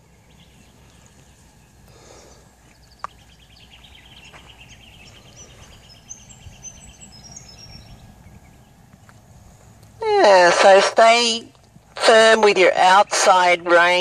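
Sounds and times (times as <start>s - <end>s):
low outdoor rumble: 0.0s - 14.0s
bird trill: 2.7s - 8.8s.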